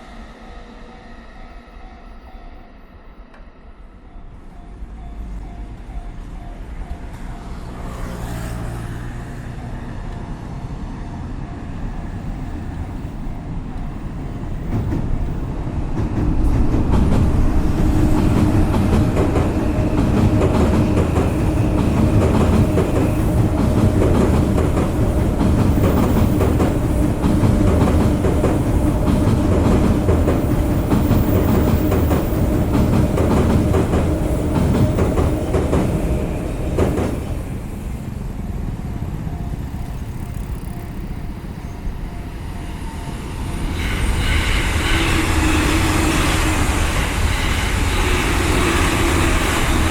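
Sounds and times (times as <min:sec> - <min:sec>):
train passing: 0:00.0 - 0:49.9
wheels clattering on track: 0:12.8 - 0:41.3.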